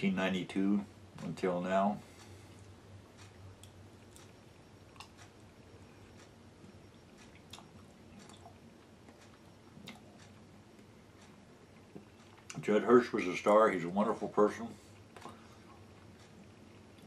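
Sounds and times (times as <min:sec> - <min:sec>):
man chewing food: 0:02.0 - 0:12.7, 0:14.7 - 0:17.0.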